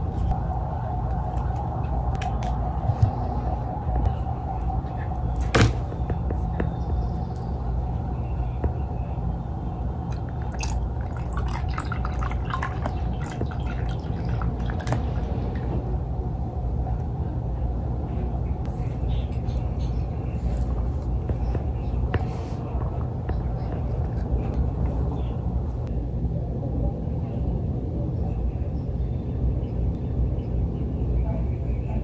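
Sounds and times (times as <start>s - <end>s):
steady low hum: 0.0s - 32.0s
milk pouring and dripping: 10.1s - 15.7s.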